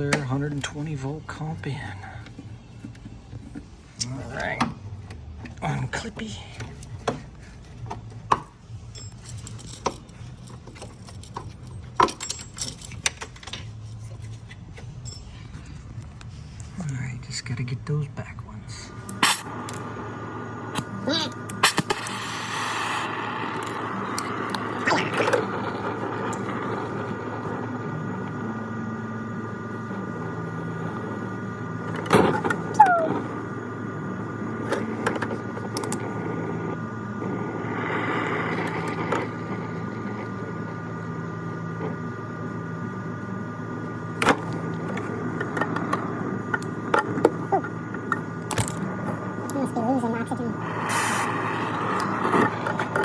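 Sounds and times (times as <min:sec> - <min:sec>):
steady hum: 0:18.2 - 0:53.0.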